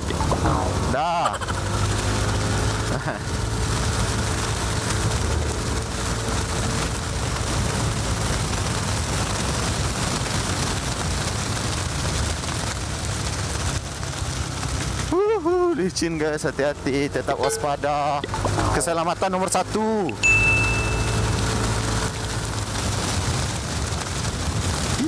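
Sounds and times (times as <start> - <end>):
rain hiss: 0.0 - 25.0
wind and road noise: 0.0 - 25.0
scooter engine running: 20.2 - 22.7.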